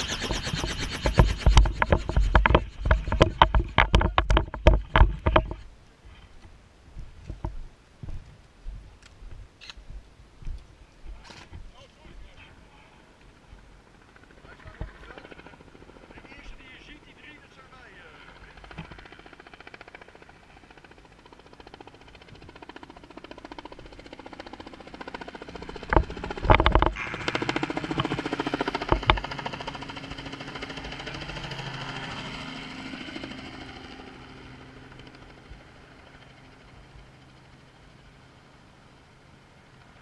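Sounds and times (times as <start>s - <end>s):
helicopter rotor beating: 0.0s - 5.7s, 12.0s - 40.0s
loud thumps: 0.2s - 5.6s.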